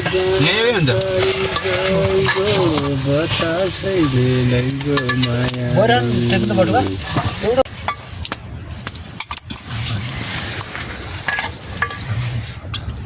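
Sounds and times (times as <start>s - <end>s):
utensil scraping a pan: 0.0s - 8.0s, 9.2s - 12.7s
food sizzling in a pan: 0.0s - 8.2s.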